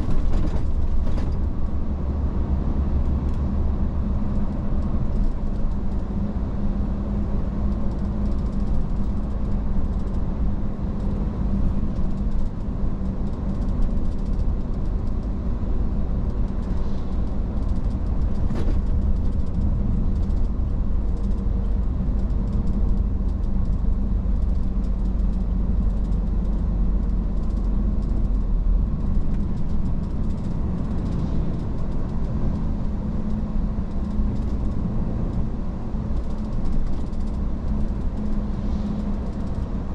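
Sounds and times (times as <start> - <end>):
road rumble: 0.0 - 39.9
truck engine hum: 0.0 - 39.9.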